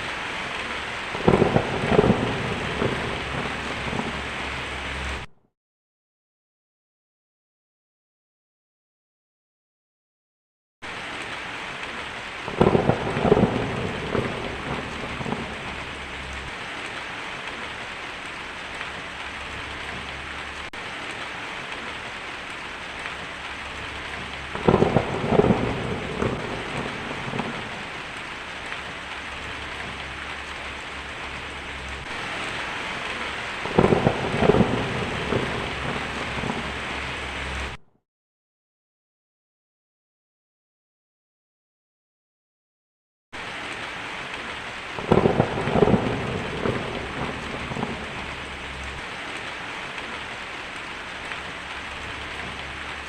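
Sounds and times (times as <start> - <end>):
steady rain: 0.0 - 5.3, 10.8 - 37.8, 43.4 - 53.0
thunder rumbling: 0.0 - 5.3, 11.9 - 37.8, 44.3 - 53.0.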